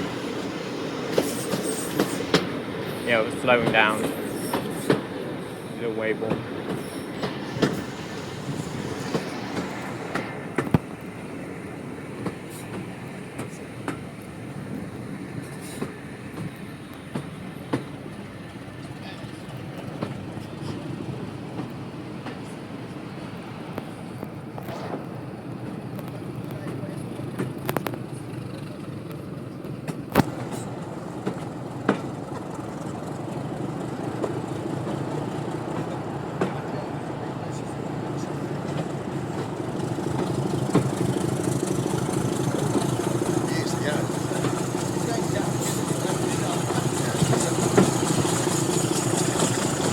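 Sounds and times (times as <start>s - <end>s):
train rolling rumble: 0.0s - 49.9s
wheel clicks over rail joints: 25.9s - 37.0s, 37.8s - 49.9s.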